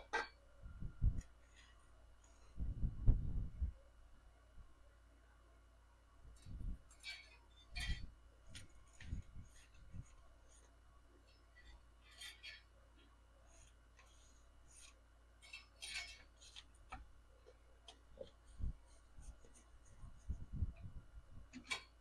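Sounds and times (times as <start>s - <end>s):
light handling clicks and scrapes: 6.3s - 22.0s.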